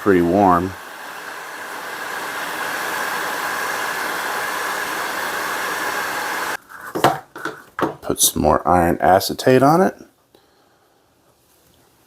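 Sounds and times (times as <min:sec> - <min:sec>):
heat gun blowing hiss: 0:00.0 - 0:06.6.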